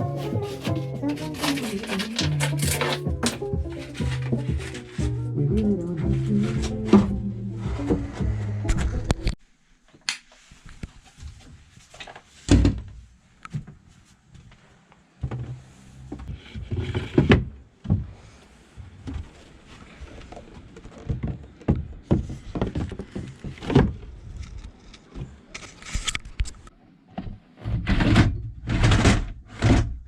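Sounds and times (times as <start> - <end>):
scraping of wooden fittings: 0.0 - 9.0, 16.1 - 17.5
knocks and thuds on wood: 21.0 - 24.0.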